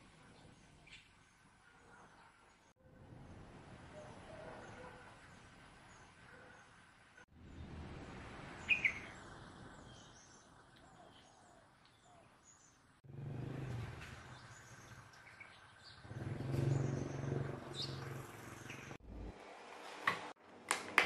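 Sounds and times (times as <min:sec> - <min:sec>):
small birds chirping: 0:00.2 - 0:02.8, 0:08.6 - 0:13.0, 0:13.6 - 0:19.0.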